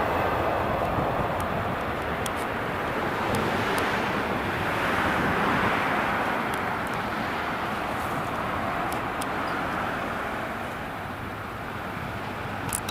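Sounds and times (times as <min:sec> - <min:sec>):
train rushing past: 0:00.0 - 0:01.9.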